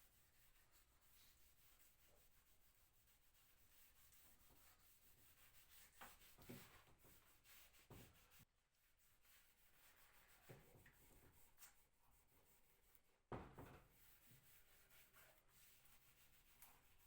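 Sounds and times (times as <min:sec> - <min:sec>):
faint rubbing on wood: 0:00.0 - 0:17.0
soft knocks: 0:13.3 - 0:13.9.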